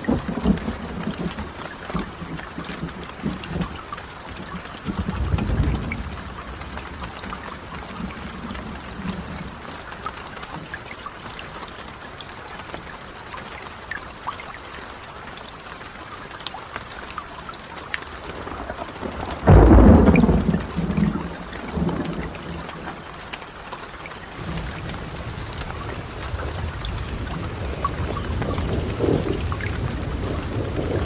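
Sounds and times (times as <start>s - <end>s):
steady rain falling: 0.0s - 31.0s
thunder clap and rumble: 4.9s - 9.5s, 18.4s - 22.9s, 24.4s - 31.0s.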